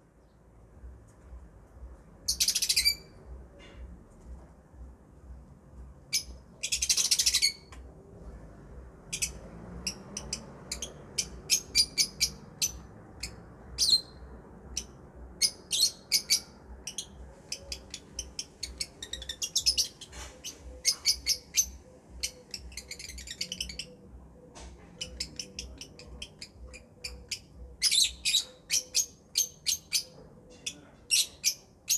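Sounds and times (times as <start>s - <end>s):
lovebirds chirping: 2.2s - 3.4s, 6.0s - 7.8s, 9.1s - 31.9s
harsh bird chatter: 6.1s - 7.7s, 9.1s - 31.9s.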